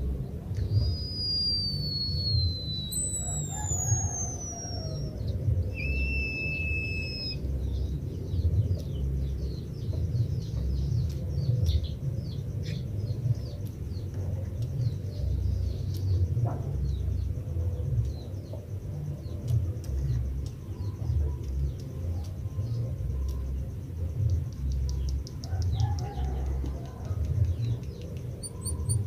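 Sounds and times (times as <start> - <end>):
low rumble: 0.0 - 25.4
bird long flat whistle: 0.6 - 7.5, 28.4 - 29.0
quick high falling bird chirps: 0.7 - 7.4.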